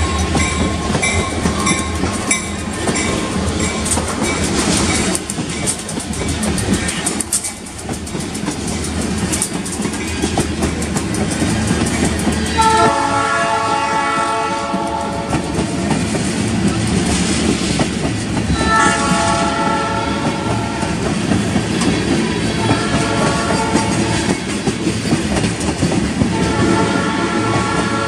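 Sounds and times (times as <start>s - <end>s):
freight train rumbling past: 0.0s - 28.0s
wheels clickety-clack: 0.0s - 28.0s
train horn blasts: 12.6s - 15.7s, 18.6s - 21.0s, 22.6s - 24.2s, 26.3s - 28.0s.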